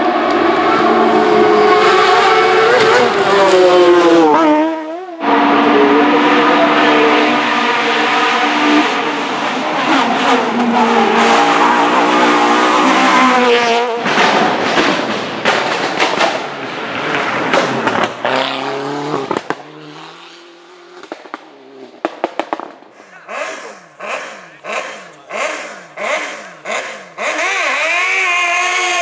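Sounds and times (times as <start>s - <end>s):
racing car engine at high revs: 0.0s - 29.0s
exhaust cracks and pops: 14.0s - 16.8s, 19.3s - 19.6s, 21.0s - 22.9s.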